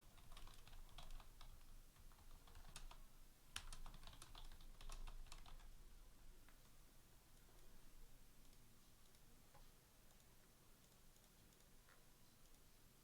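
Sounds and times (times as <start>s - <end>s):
typing on computer keyboard: 0.1s - 3.0s, 3.6s - 5.7s.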